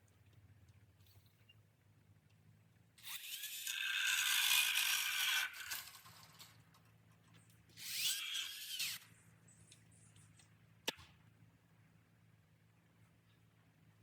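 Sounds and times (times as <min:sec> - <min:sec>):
small power tool spinning: 0:03.0 - 0:06.6, 0:07.8 - 0:09.1.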